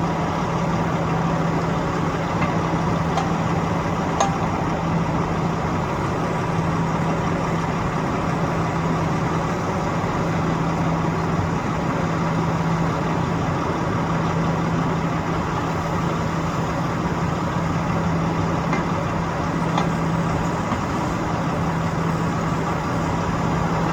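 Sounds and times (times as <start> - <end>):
machinery engine idling: 0.0 - 23.9.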